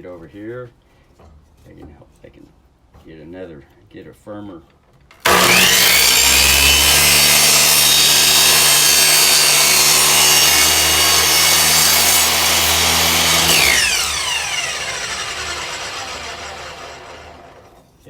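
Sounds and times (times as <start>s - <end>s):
miter saw cutting wood: 5.2s - 17.8s
saw blade spinning down: 5.2s - 17.8s.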